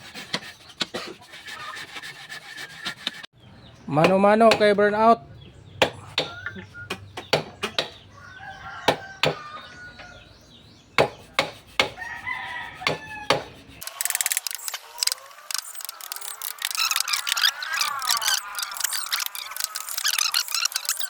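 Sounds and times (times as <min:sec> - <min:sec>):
sharp knocks: 0:04.0 - 0:04.8
rooster crowing: 0:08.1 - 0:10.4, 0:11.9 - 0:13.5
high-pitched squeaky chirping: 0:12.0 - 0:21.0.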